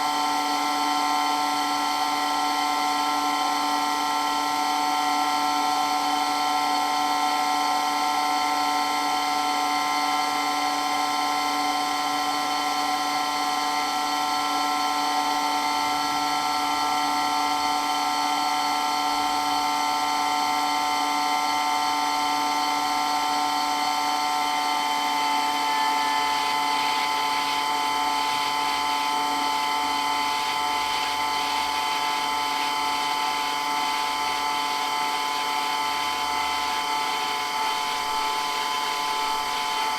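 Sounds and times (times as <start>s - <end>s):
water pump whining: 23.0s - 39.9s.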